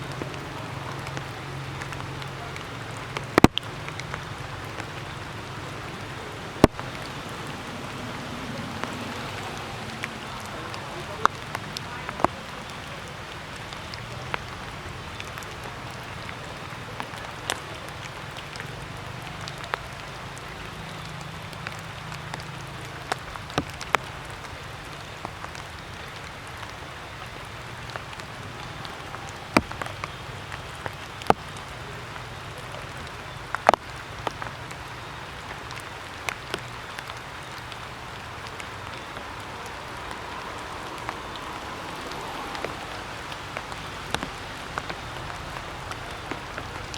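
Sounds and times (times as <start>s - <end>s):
steady hiss: 0.0s - 46.9s
water drops hitting leaves: 0.0s - 46.9s.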